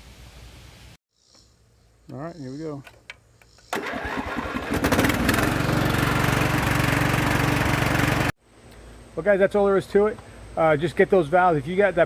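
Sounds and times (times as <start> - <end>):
electric starter cranking engine: 3.7 - 8.3
mower engine running: 3.7 - 8.4.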